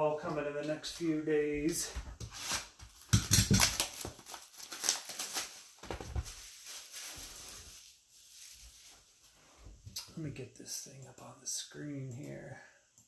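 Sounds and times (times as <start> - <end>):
card packaging rustling: 2.2 - 9.1.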